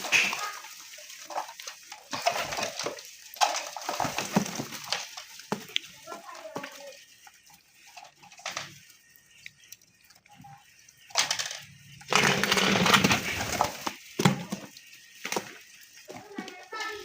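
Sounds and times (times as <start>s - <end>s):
pigeons flapping wings: 0.0s - 7.0s, 12.1s - 17.0s.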